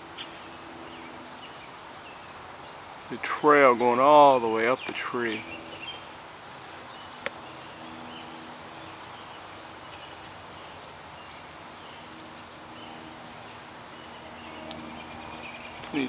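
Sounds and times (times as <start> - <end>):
birds chirping: 0.0 - 16.0
outdoor background hiss: 0.0 - 16.0.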